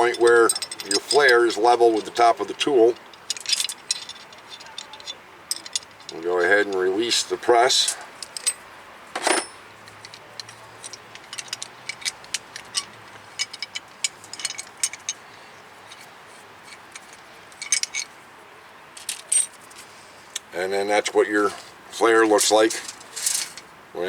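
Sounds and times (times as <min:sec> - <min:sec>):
metal tool clicks and clinks: 0:00.0 - 0:07.0, 0:07.9 - 0:08.6, 0:09.2 - 0:15.2, 0:16.7 - 0:18.1.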